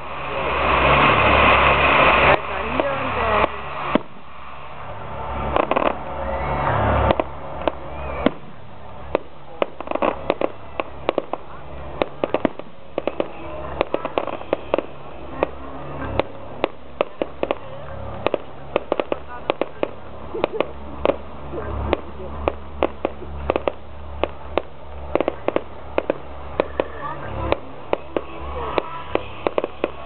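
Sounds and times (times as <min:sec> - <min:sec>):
fireworks bangs and pops: 0:00.0 - 0:30.0.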